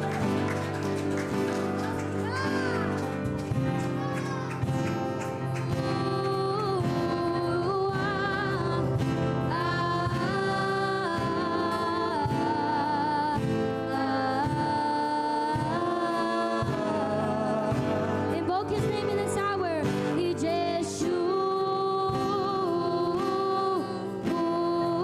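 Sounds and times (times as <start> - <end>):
voices singing gospel in harmony: 5.8 - 21.1.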